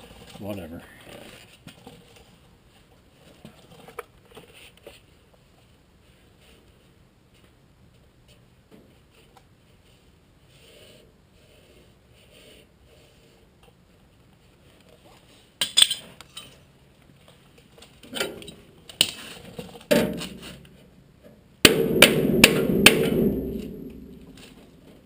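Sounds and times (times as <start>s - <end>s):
hammer striking sheet steel: 21.6s - 25.0s
steady din: 21.6s - 25.0s.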